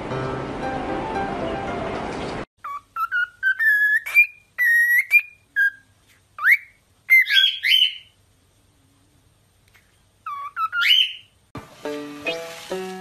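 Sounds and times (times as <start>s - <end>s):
cockatiel whistling: 2.6s - 8.1s, 10.2s - 11.3s.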